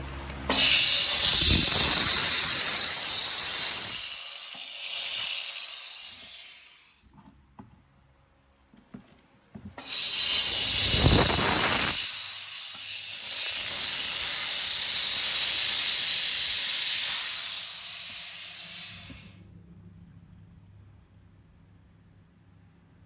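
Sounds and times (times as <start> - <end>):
loud steady hiss: 0.0 - 6.9, 9.8 - 19.3.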